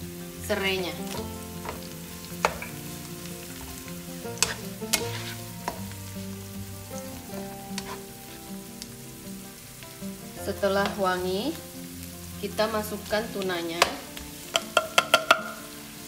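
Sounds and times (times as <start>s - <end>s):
food sizzling in hot oil: 0.0s - 16.0s
plastic spatula knocking pan: 14.6s - 15.6s.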